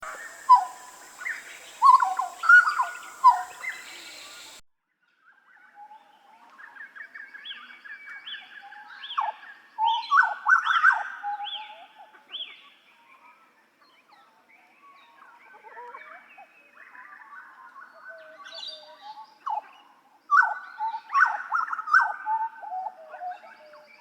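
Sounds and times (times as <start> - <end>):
butcherbird singing: 0.0 - 4.6.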